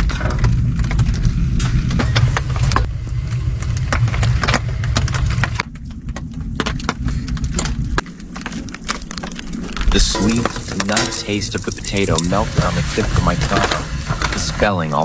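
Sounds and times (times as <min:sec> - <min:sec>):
low steady rumble: 0:00.0 - 0:15.0
wood fire crackling and popping: 0:00.0 - 0:15.0.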